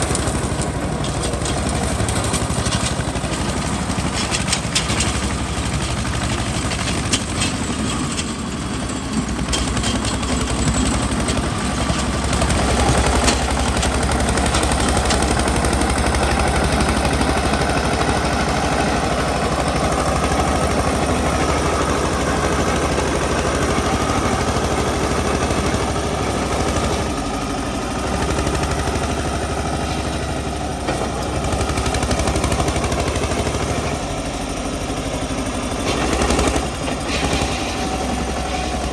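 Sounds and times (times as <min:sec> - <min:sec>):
tractor diesel engine chugging: 0:00.0 - 0:38.9.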